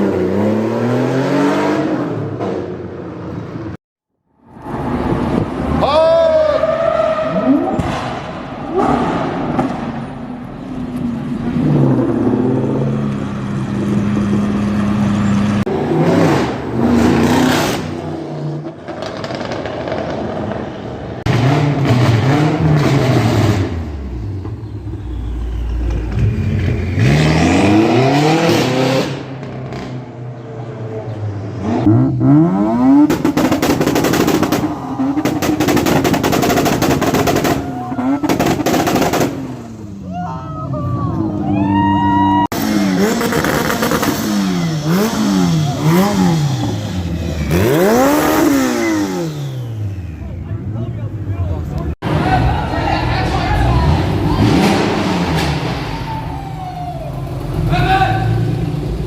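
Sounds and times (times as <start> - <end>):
car engines revving: 0.0 - 3.8, 4.4 - 59.0
exhaust pops and crackles: 18.8 - 20.6, 33.0 - 39.6.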